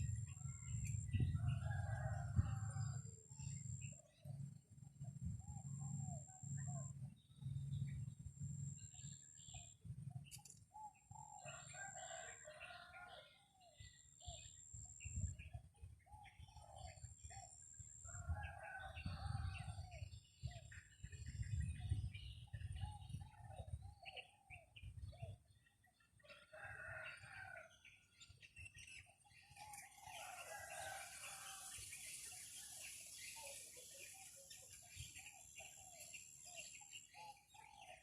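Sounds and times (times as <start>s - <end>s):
wind rumbling on microphone: 0.0s - 10.3s, 13.8s - 25.6s
rooster crowing: 1.4s - 3.0s, 11.5s - 13.2s, 26.3s - 27.6s, 30.2s - 31.8s.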